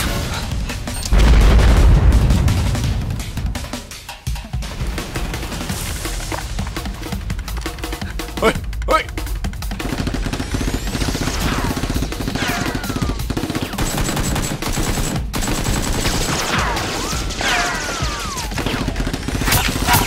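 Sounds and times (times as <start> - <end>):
rapid automatic gunfire: 9.6 - 20.0.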